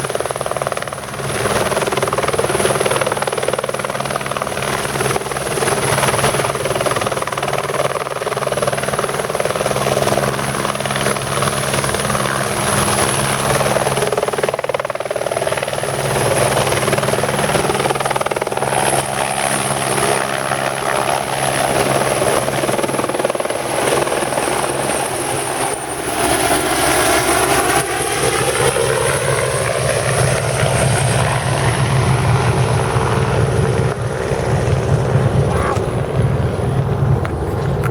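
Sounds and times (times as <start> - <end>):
helicopter rotor and engine: 0.0 - 37.9
high turbine whine: 31.0 - 37.9.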